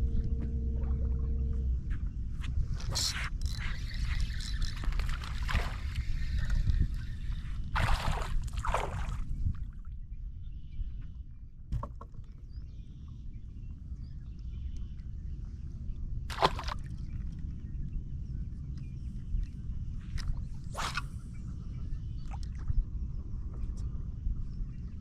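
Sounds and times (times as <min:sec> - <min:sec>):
water sloshing against boat: 0:00.0 - 0:09.8, 0:16.3 - 0:17.4
steady low rumble: 0:00.0 - 0:11.6
sharp knocks or splashes: 0:16.3 - 0:16.8.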